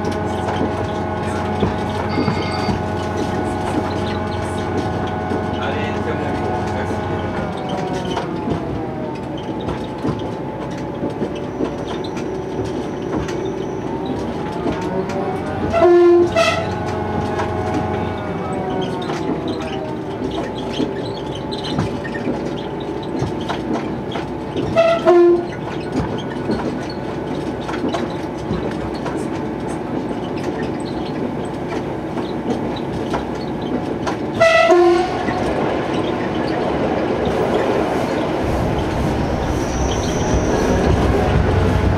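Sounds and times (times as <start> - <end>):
train engine hum: 0.0 - 41.9
train horn blasts: 15.6 - 18.1, 24.8 - 25.5, 34.4 - 35.4.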